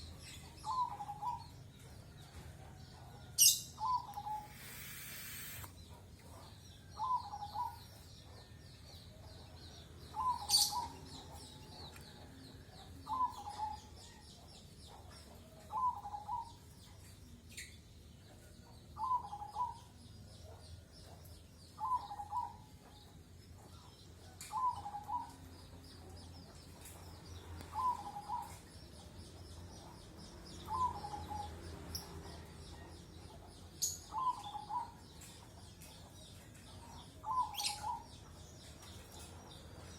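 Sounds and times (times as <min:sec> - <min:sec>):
steady high chirring: 0:04.1 - 0:05.8.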